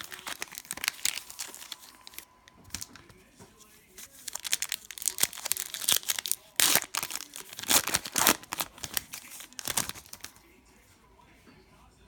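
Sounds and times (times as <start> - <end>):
cellophane wrapper crinkling: 0.0 - 3.1, 3.9 - 10.4.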